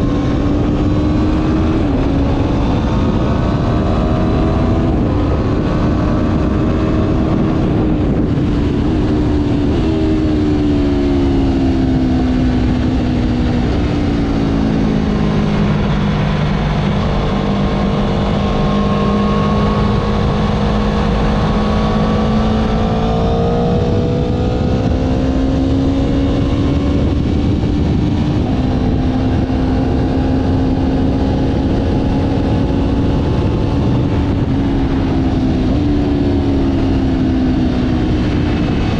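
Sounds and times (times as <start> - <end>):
motorcycle engine running: 0.0 - 38.9
wind rush: 0.0 - 38.9.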